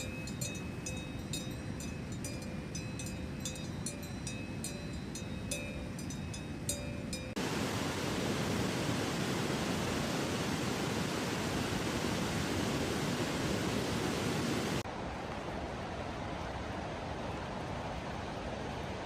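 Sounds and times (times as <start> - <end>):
rushing water: 4.6 - 19.0.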